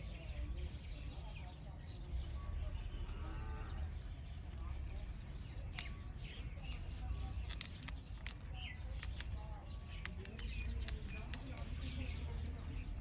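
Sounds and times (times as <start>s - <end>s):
small birds chirping: 0.0s - 13.0s
birds pecking clicks: 4.6s - 13.0s.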